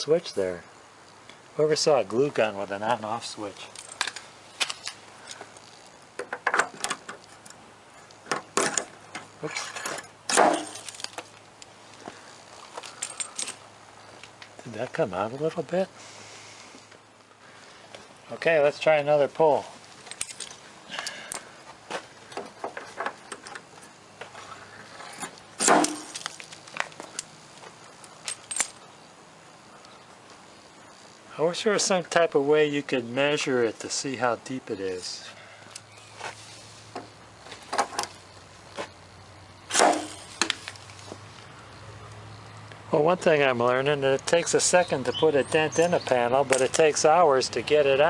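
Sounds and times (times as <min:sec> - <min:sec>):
loud crack: 0:10.3 - 0:10.9, 0:25.6 - 0:26.4, 0:39.7 - 0:40.8.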